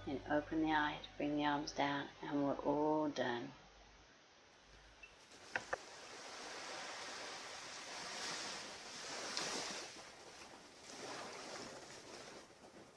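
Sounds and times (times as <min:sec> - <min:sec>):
surf washing onto a beach: 0:05.3 - 0:12.9.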